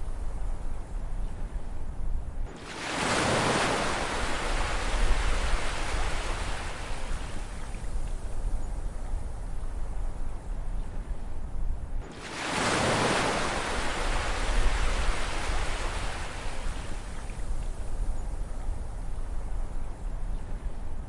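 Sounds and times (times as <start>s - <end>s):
ocean waves rumbling: 2.5s - 7.8s, 12.0s - 17.3s
wave breaking and washing in: 2.5s - 7.8s, 12.0s - 17.4s.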